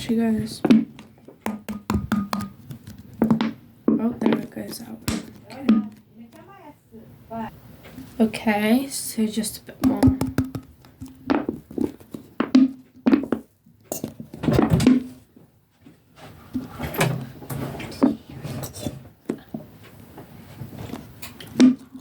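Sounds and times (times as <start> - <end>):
containers tapping and scraping: 0.0 - 6.6, 9.8 - 15.0, 20.9 - 22.0.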